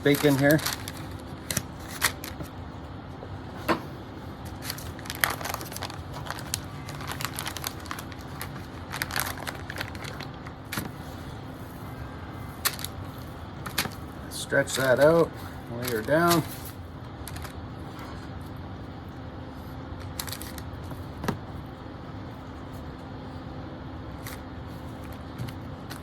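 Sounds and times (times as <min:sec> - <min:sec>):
parchment paper crinkling: 0:00.0 - 0:02.5, 0:04.4 - 0:11.9, 0:12.5 - 0:21.2, 0:24.1 - 0:26.0.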